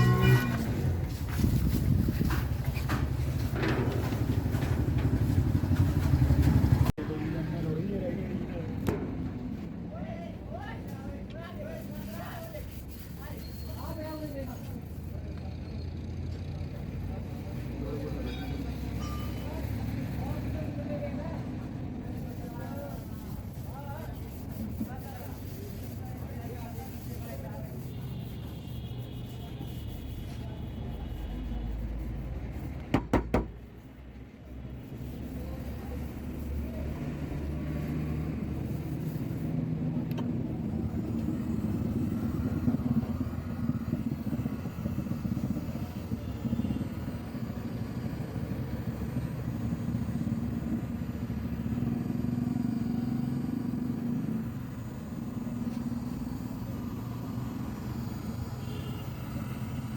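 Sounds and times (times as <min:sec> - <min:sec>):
vehicle engine rumble: 0:00.0 - 0:59.9
sharp knocks: 0:32.9 - 0:33.6.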